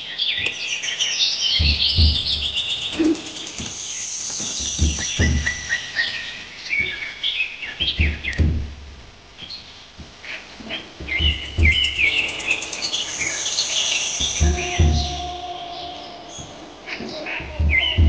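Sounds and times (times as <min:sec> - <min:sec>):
small birds chirping: 0:00.0 - 0:18.0
dull low thumps: 0:01.6 - 0:03.8, 0:04.4 - 0:05.9, 0:07.7 - 0:13.4, 0:14.2 - 0:15.6, 0:16.4 - 0:18.0.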